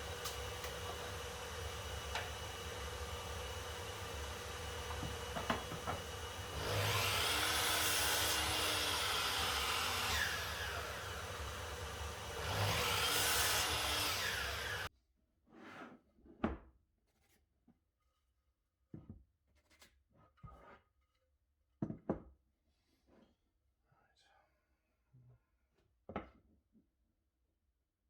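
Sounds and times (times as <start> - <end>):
power tool cutting timber: 0.0 - 14.9.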